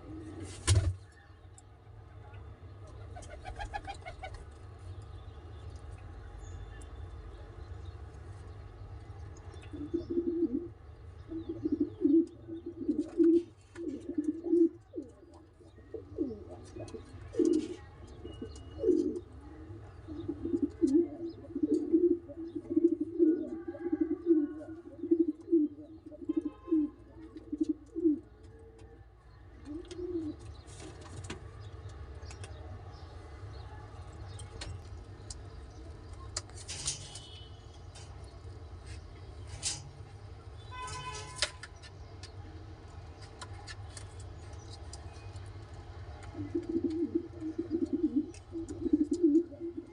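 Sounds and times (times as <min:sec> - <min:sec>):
pigeons cooing: 0:00.0 - 0:00.5, 0:09.7 - 0:28.5, 0:29.6 - 0:30.6, 0:46.2 - 0:49.9.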